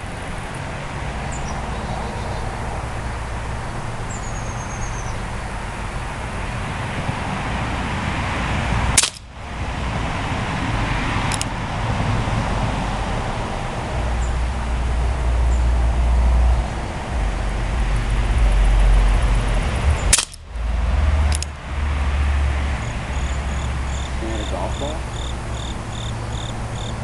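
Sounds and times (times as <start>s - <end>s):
steady low rumble: 0.0s - 27.0s
air pistol shot pop: 9.0s - 9.3s, 20.1s - 20.4s.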